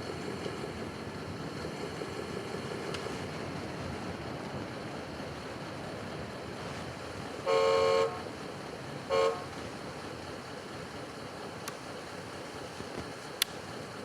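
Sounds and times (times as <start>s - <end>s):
horn honking: 7.4s - 8.3s, 9.1s - 9.6s.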